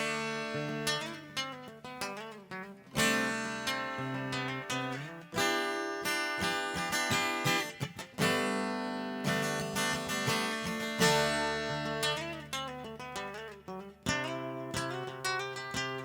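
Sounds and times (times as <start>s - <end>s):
acoustic guitar strummed: 0.0s - 16.0s.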